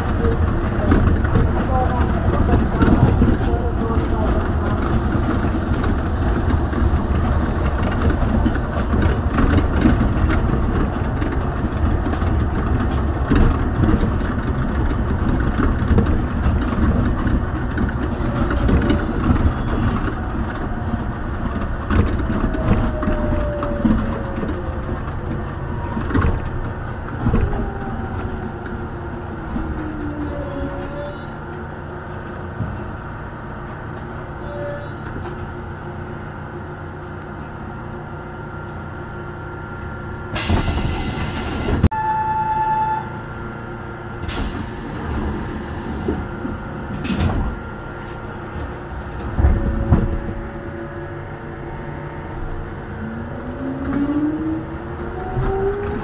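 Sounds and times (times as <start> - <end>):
train rumble: 0.0 - 56.0
air hiss: 40.4 - 41.9, 44.2 - 46.3
short beep: 41.9 - 43.1.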